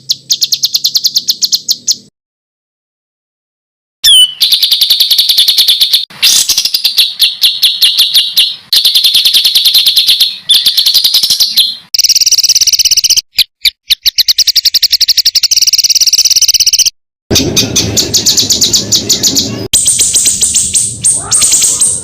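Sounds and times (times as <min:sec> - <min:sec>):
songbird harsh rapid trills: 0:17.5 - 0:22.0.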